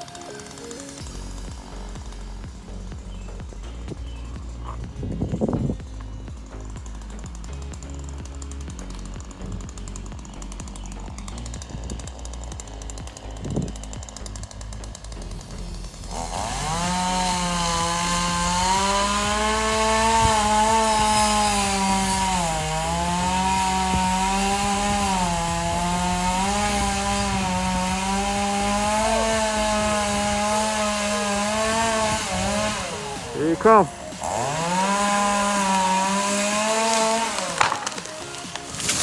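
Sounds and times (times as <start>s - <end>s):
chainsaw cutting wood: 0.0s - 39.0s.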